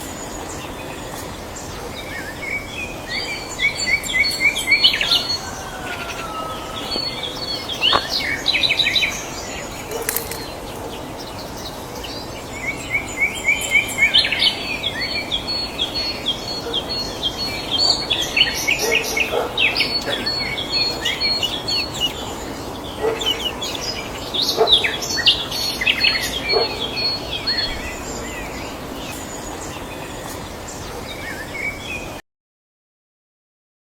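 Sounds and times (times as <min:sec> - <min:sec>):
songbirds chirping and trilling: 0:00.0 - 0:32.2
steady background noise: 0:00.0 - 0:32.2.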